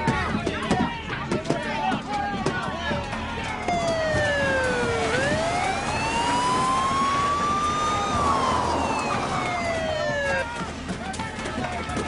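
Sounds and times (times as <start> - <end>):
police siren wailing: 3.7 - 10.7.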